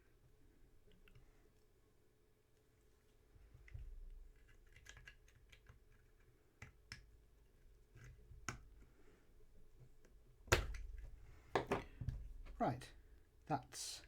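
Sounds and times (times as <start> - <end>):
small plastic parts clicking: 3.6 - 7.1.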